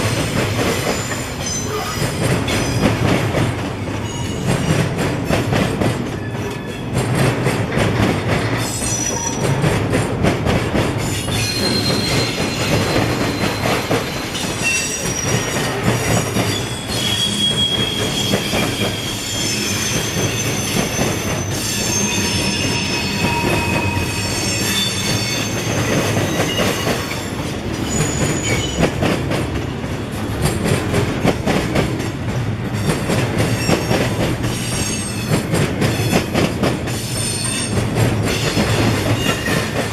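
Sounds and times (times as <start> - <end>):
train wheels squealing: 0.0 - 3.0, 4.0 - 5.4, 8.6 - 9.7, 11.0 - 28.9, 32.8 - 36.3, 36.9 - 39.9.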